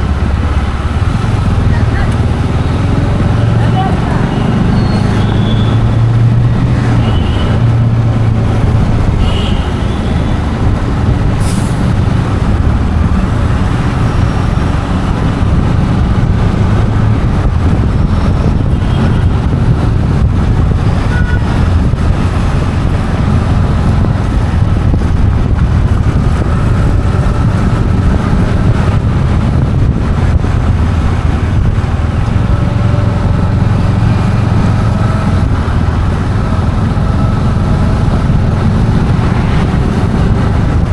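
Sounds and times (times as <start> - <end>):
road traffic rumble: 0.0 - 40.9.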